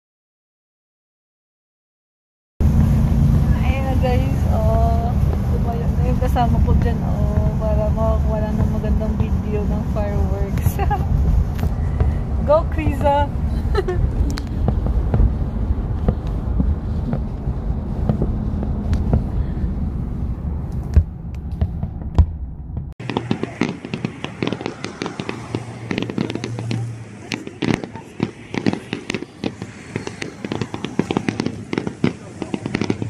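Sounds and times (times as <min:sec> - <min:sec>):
low rumble: 0:02.6 - 0:27.3
fireworks popping and crackling: 0:03.6 - 0:19.5, 0:23.0 - 0:33.0.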